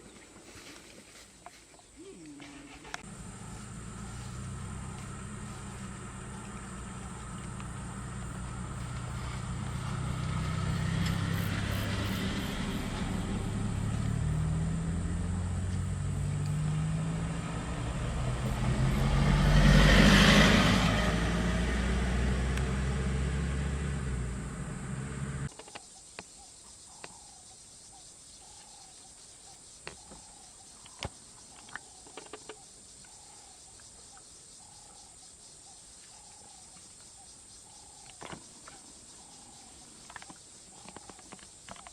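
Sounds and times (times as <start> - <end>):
vehicle engine running: 2.8 - 25.5.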